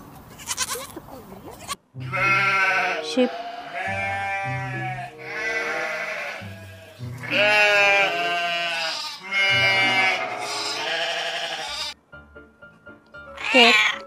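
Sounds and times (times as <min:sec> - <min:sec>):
sheep bleating: 0:00.4 - 0:01.0, 0:01.6 - 0:12.0
background music: 0:01.8 - 0:14.0.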